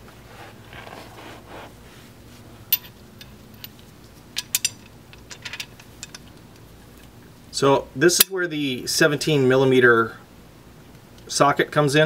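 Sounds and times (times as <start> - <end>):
metal hand tools clinking: 4.4 - 6.3.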